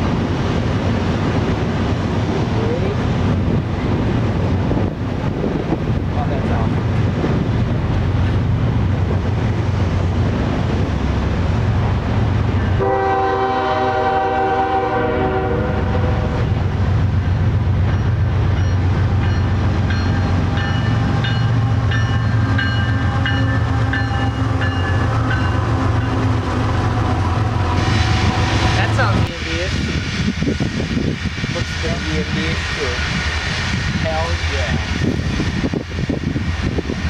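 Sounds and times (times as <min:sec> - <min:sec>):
train engine and rail rumble: 0:00.0 - 0:37.0
train horn blast: 0:12.8 - 0:16.5, 0:23.1 - 0:29.4.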